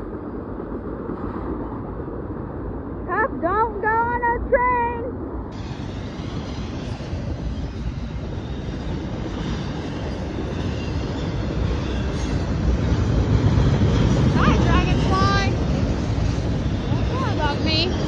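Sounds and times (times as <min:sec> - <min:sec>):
train wheels on rails: 0:05.6 - 0:18.0.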